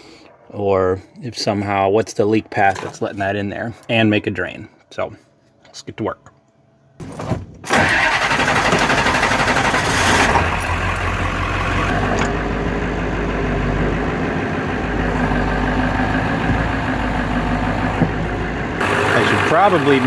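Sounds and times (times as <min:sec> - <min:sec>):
engine starting and idling: 0:07.6 - 0:12.8, 0:18.8 - 0:20.0.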